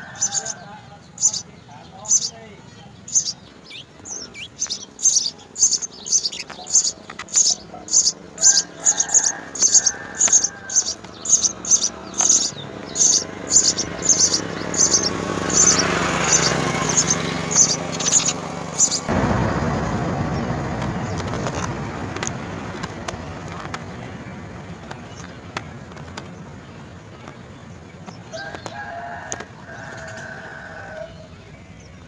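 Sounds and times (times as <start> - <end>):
sparrows chirping: 0.0 - 32.0
rushing noise: 4.1 - 25.3.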